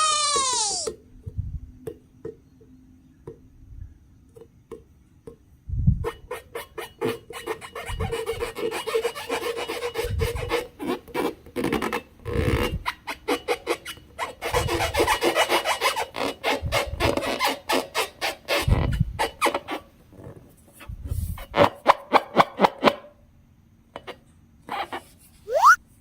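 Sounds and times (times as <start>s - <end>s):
short rising squeak: 25.5s - 25.8s.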